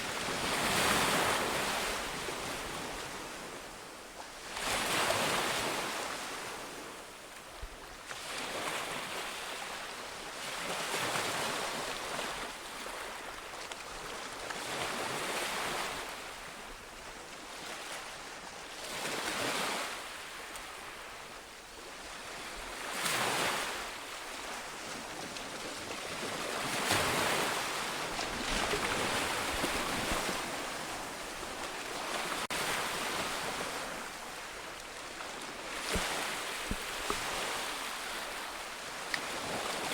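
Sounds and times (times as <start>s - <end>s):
ocean waves breaking on shore: 0.0s - 7.1s, 17.5s - 39.9s.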